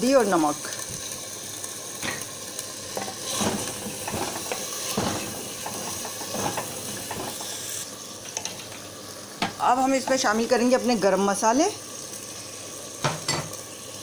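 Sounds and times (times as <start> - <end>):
chicken sizzling in oil: 0.0 - 14.0
wooden spatula scraping a pot: 3.0 - 7.7.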